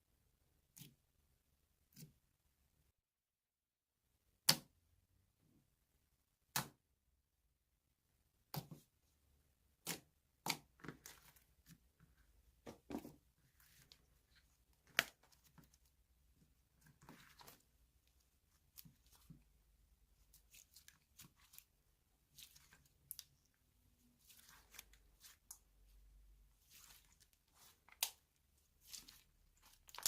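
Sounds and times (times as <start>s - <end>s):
slime crackling: 26.5s - 30.0s.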